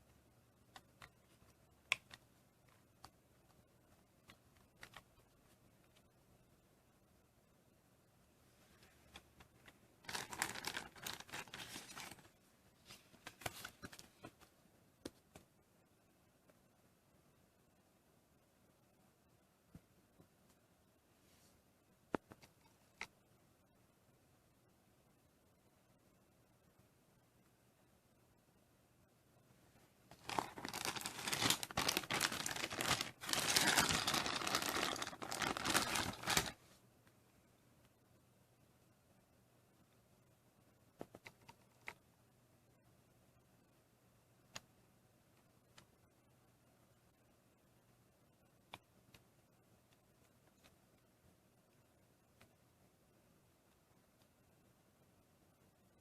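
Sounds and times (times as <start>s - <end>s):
rustling and crinkling: 8.5s - 14.6s, 29.8s - 36.8s.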